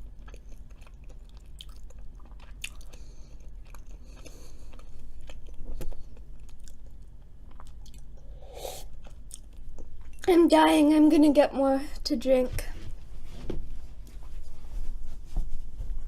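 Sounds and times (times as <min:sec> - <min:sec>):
chewing crunchy fries: 0:00.0 - 0:08.2, 0:08.8 - 0:10.3.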